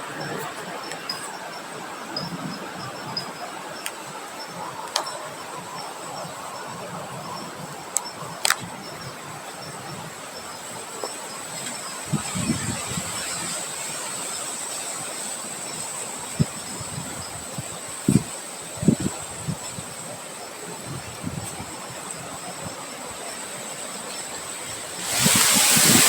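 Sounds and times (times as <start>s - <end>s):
even hiss: 23.8s - 26.0s.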